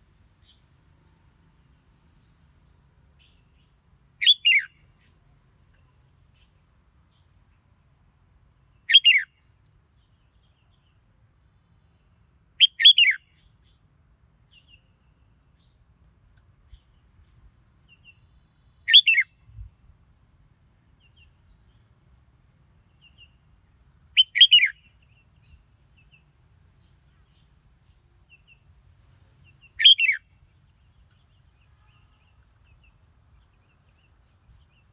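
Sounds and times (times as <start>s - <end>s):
bird warbling song: 4.2s - 4.7s, 8.9s - 9.3s, 12.6s - 13.2s, 17.9s - 19.3s, 24.2s - 28.7s, 29.4s - 34.9s
faint bird chirps: 4.2s - 6.5s, 8.7s - 13.8s, 16.6s - 19.7s, 24.1s - 34.9s.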